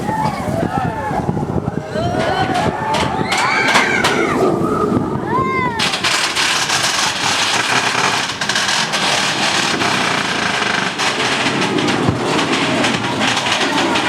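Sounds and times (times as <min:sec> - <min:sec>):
roller coaster rattling on track: 0:00.0 - 0:14.0.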